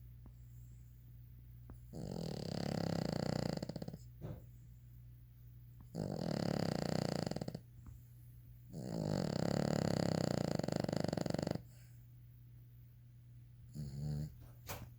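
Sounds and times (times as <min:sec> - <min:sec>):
dog snoring: 0:01.8 - 0:04.4, 0:05.8 - 0:07.7, 0:08.7 - 0:11.9, 0:13.7 - 0:14.5.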